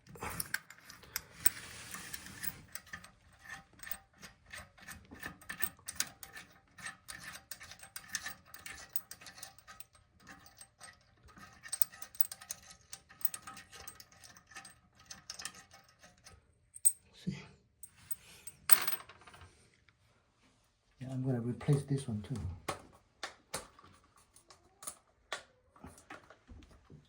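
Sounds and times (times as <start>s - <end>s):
metallic clicking and scraping: 0.0s - 17.0s.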